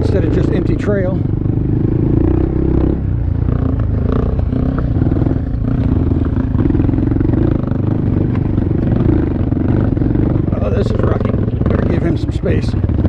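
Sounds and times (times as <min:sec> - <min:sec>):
small motorcycle engine running: 0:00.0 - 0:13.0.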